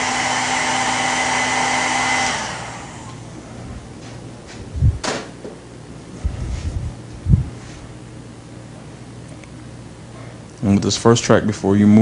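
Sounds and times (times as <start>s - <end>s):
hair dryer running: 0.0s - 5.6s.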